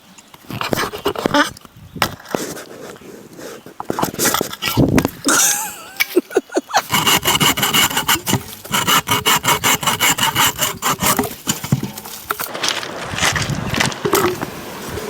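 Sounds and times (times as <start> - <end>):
saw cutting bamboo: 0.4 - 1.5, 6.7 - 12.5.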